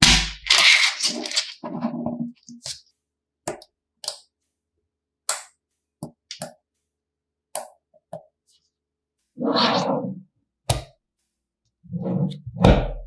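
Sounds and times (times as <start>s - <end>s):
plastic pieces clattering: 0.0s - 1.7s
plastic pieces clicking together: 0.4s - 1.6s.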